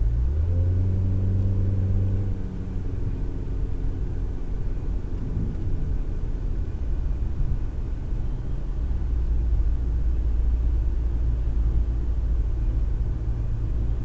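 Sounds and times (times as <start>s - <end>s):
car engine hum: 0.0s - 14.0s
road rumble: 0.0s - 14.0s.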